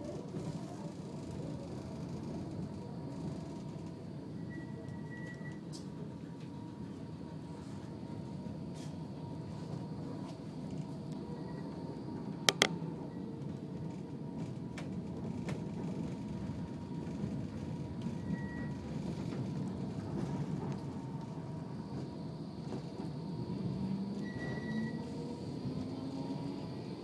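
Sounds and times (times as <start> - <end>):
tram rumble: 0.0 - 27.0
sharp clicks: 12.5 - 12.7.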